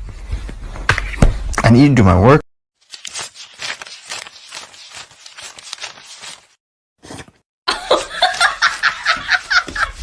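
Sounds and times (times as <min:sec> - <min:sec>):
scratchy rustling: 0:02.8 - 0:10.0.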